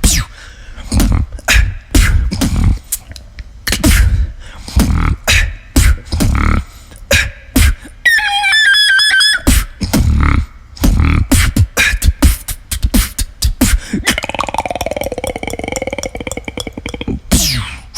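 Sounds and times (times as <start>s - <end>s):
beatboxing whistle-like tone: 0.0s - 0.3s, 0.9s - 3.1s, 4.8s - 6.5s, 7.1s - 10.2s, 10.8s - 17.9s
beatboxed kick and snare hits: 0.0s - 3.0s, 3.7s - 7.9s, 9.5s - 10.2s, 10.8s - 15.8s, 16.6s - 17.8s
beatboxed buzzing roll: 0.0s - 7.9s, 8.9s - 17.9s.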